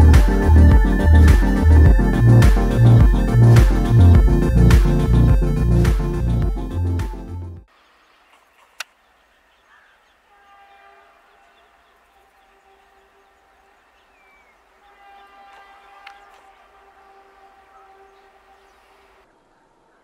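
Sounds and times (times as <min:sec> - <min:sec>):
bird chirp: 0:07.7 - 0:20.0.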